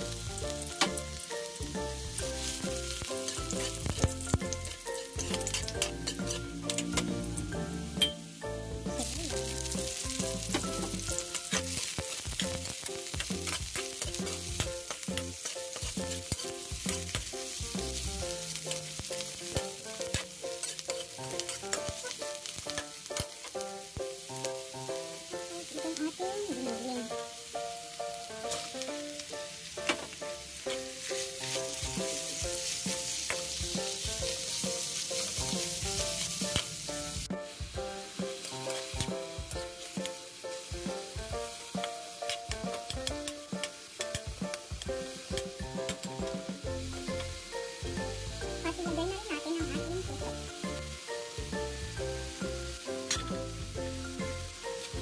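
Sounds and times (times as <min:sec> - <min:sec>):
meat sizzling in a frying pan: 0:00.0 - 0:55.0
spatula scraping a pan: 0:02.4 - 0:07.1, 0:09.5 - 0:23.6, 0:29.8 - 0:37.2.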